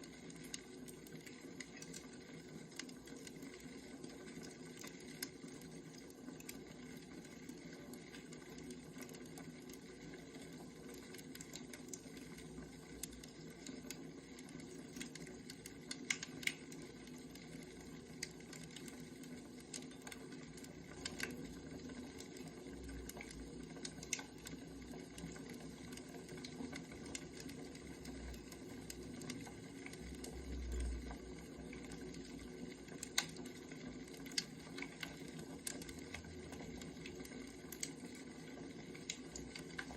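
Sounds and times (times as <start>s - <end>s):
fire crackles and pops: 0.0s - 39.9s
wood fire hissing: 10.1s - 39.9s.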